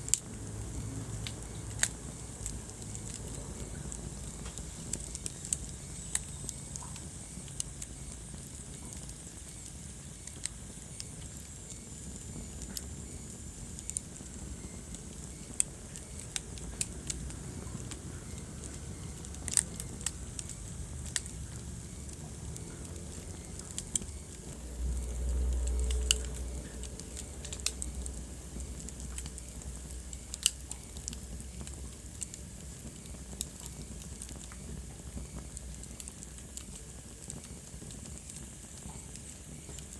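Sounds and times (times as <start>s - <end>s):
wood fire crackling: 0.0s - 39.9s
low rumble: 20.3s - 30.0s.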